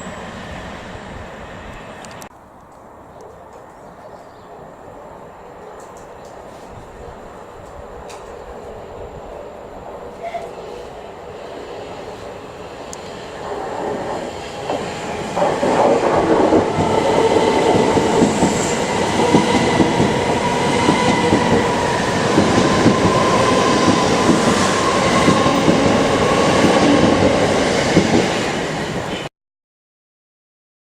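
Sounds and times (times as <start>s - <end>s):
train wheels clattering: 13.0s - 29.2s.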